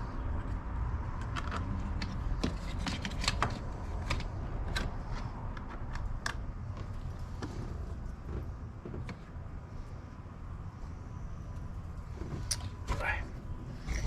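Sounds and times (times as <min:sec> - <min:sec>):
steady low rumble: 0:03.6 - 0:14.0.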